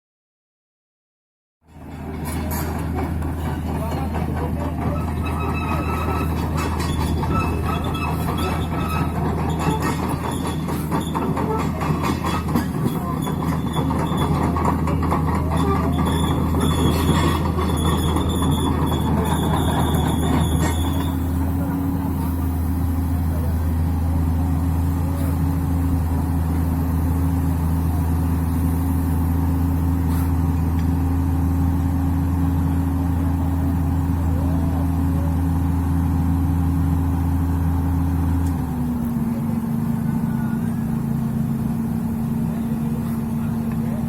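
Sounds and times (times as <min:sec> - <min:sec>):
excavator diesel engine running: 0:01.7 - 0:44.0.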